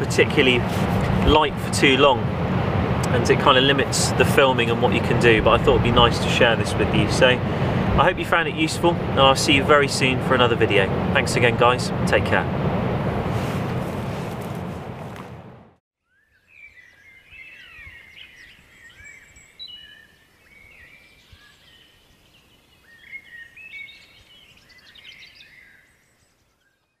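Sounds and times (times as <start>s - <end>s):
loud rushing noise: 0.0s - 15.8s
songbirds chirping: 3.0s - 12.4s, 16.0s - 27.0s.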